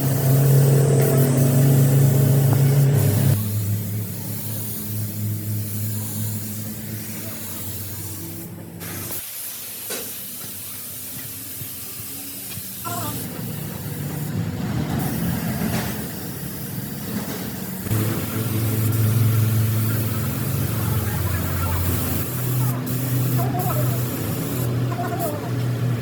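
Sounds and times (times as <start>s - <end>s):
hiss: 0.0s - 25.4s
machinery humming: 17.9s - 22.9s.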